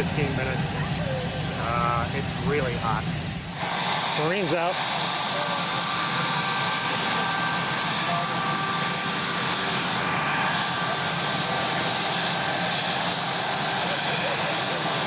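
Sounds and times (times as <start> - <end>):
high steady whine: 0.0 - 4.8
helicopter rotor and turbine noise: 0.0 - 15.0.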